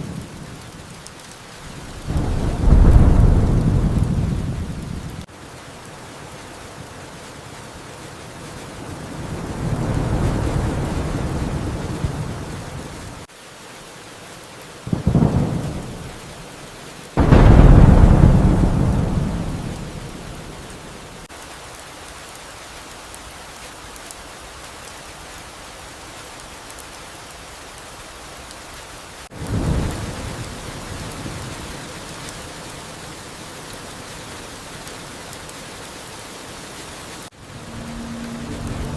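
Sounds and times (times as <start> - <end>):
thunder claps: 0.0 - 13.3, 14.9 - 16.2, 17.2 - 21.3, 37.5 - 38.9
steady rain: 0.0 - 38.9.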